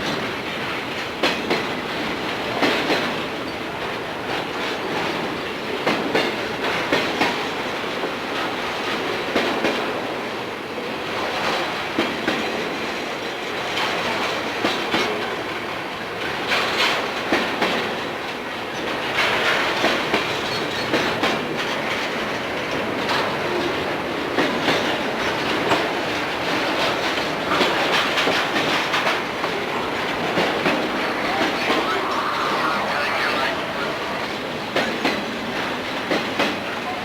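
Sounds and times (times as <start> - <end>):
train wheels rumbling on rails: 0.0 - 37.0
sharp clicks of train wheels: 11.7 - 37.0.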